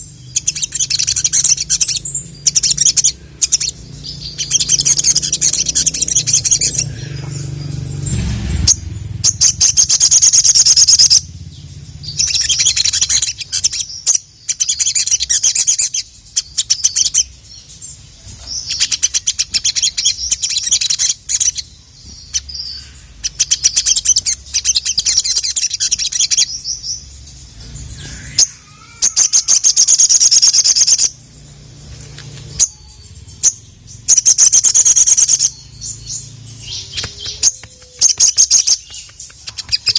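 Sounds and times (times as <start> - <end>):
bird singing rapid ticking trills: 0.0 - 39.9.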